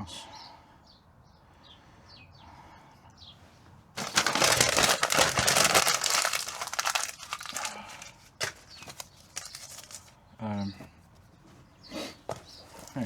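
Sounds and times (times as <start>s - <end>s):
sheet material crinkling: 4.0s - 10.2s.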